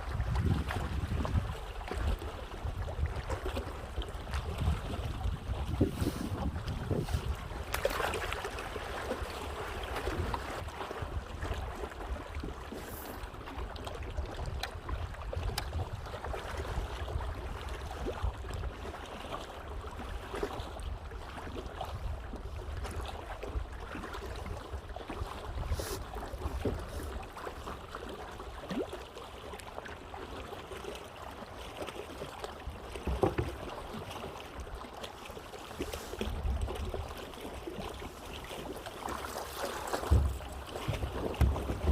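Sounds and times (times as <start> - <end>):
wind rumble on microphone: 0.0 - 27.3, 40.0 - 41.9
paddle splashes: 0.0 - 41.9
water lapping at hull: 0.0 - 41.9.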